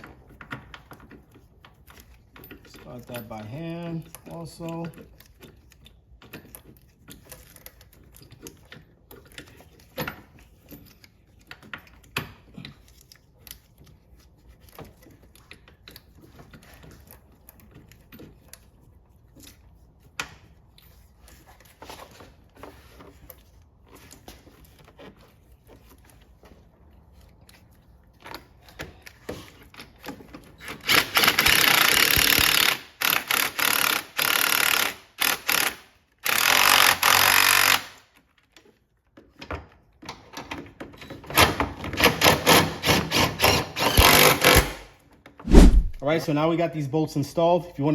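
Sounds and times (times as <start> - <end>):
power tool driving bolts: 30.6 - 38.0, 41.3 - 44.9.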